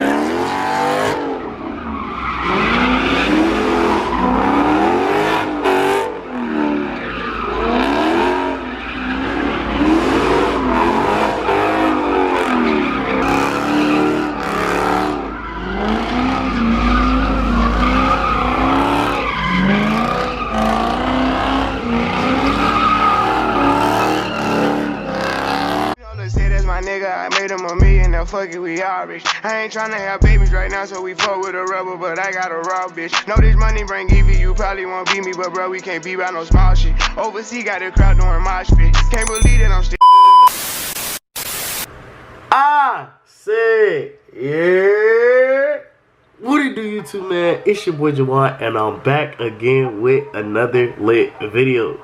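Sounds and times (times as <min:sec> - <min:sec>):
car engine revving: 0:00.0 - 0:26.0
tires squealing: 0:00.0 - 0:26.0.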